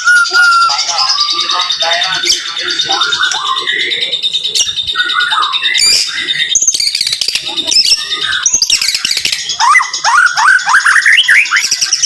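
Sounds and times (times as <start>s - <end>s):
songbird singing rapid whistles: 0.0s - 1.4s, 4.4s - 12.0s.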